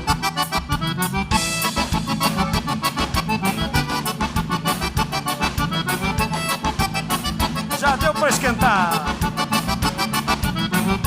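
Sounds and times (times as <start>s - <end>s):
accordion playing: 0.0s - 11.0s
band with steady beat: 0.0s - 11.0s
person singing: 7.7s - 9.3s.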